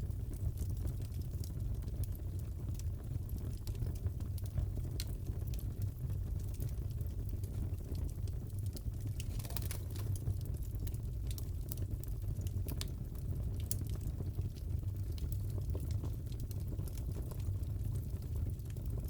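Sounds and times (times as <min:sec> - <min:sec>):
burning wood rumble: 0:00.0 - 0:19.0
fire pops and crackles: 0:00.0 - 0:19.0.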